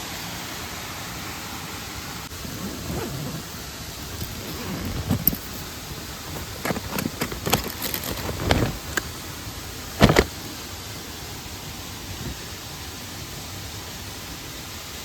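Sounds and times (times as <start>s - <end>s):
mountain stream and waterfall: 0.0s - 15.0s
gear knocking and rustling: 4.0s - 9.1s, 10.0s - 10.4s
double thump: 10.0s - 10.4s.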